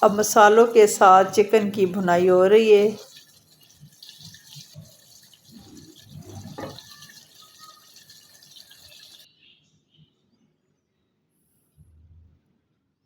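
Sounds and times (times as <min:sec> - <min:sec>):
food sizzling and bubbling in a pot: 0:00.0 - 0:09.3.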